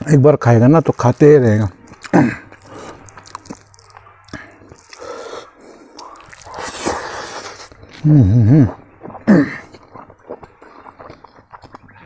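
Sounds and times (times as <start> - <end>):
person chewing food: 0.8 - 12.0
noisy breath: 2.6 - 3.1, 4.3 - 7.9.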